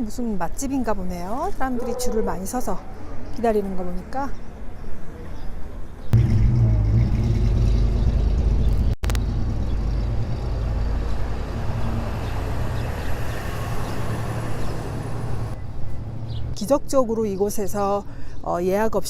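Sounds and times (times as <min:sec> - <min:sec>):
car engine and road rumble: 0:06.2 - 0:16.6.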